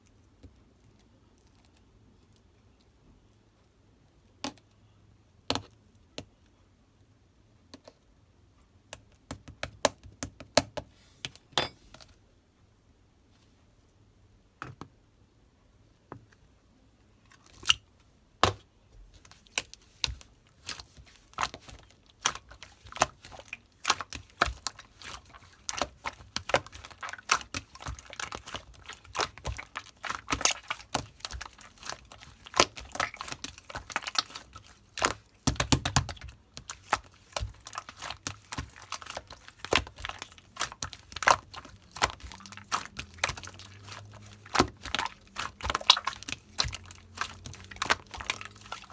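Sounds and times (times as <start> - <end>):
hands squishing slime: 18.4 - 48.9.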